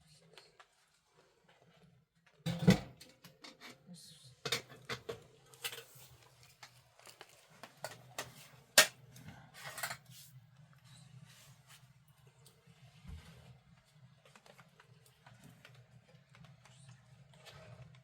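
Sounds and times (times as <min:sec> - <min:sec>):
kitchenware clinking and clattering: 0:02.5 - 0:03.8, 0:04.4 - 0:06.7, 0:07.8 - 0:10.2.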